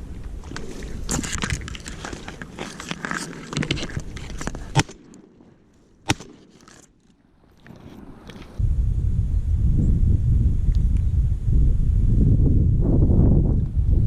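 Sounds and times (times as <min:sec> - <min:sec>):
rustling and scraping movement: 0:00.0 - 0:08.6.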